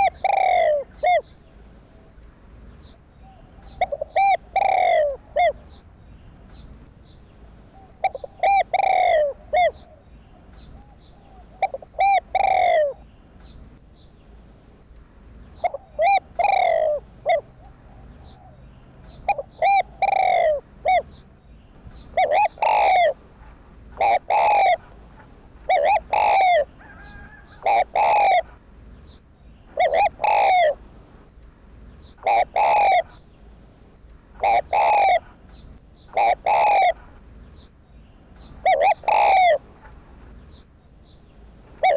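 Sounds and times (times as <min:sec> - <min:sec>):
dove cooing: 0:00.0 - 0:02.1, 0:03.2 - 0:05.8, 0:07.4 - 0:13.1, 0:15.6 - 0:21.2, 0:22.0 - 0:28.6, 0:29.7 - 0:30.9, 0:32.2 - 0:33.2, 0:34.4 - 0:35.4, 0:36.1 - 0:37.2, 0:38.5 - 0:40.0, 0:41.7 - 0:41.9.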